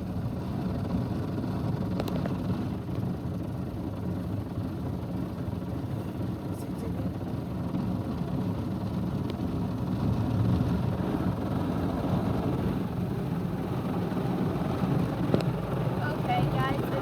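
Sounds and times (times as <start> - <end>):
car wash machinery running: 12.2 - 17.0.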